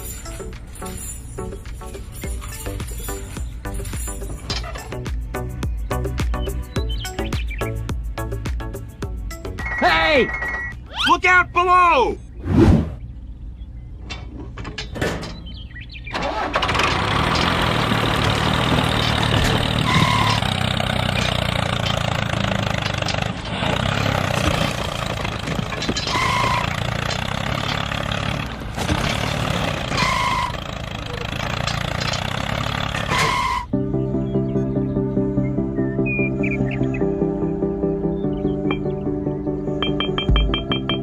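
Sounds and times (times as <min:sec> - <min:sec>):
short high beeps: 0:09.6 - 0:10.8, 0:39.8 - 0:41.0
engine starting and running: 0:13.8 - 0:33.8.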